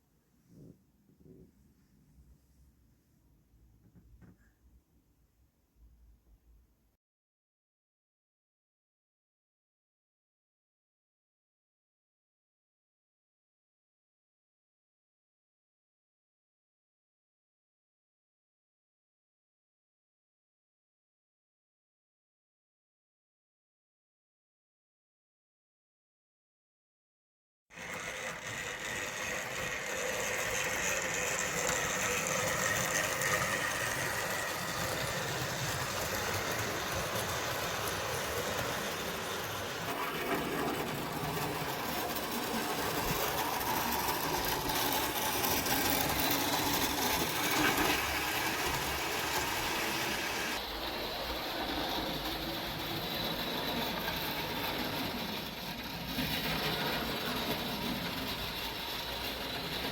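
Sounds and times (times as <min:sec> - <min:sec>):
small electric motor whine: 0:27.7 - 0:59.9
wheels clattering over rails: 0:27.8 - 0:59.9.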